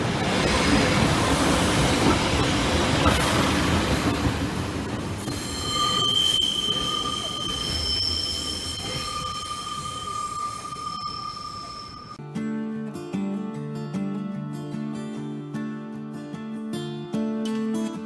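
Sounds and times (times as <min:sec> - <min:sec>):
train wheels and engine rumbling: 0:00.0 - 0:12.2
high wheel squeal: 0:05.2 - 0:12.2.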